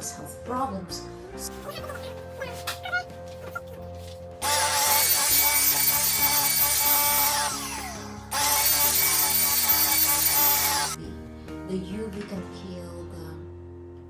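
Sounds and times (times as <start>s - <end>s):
vacuum cleaner motor whining: 4.4s - 11.0s.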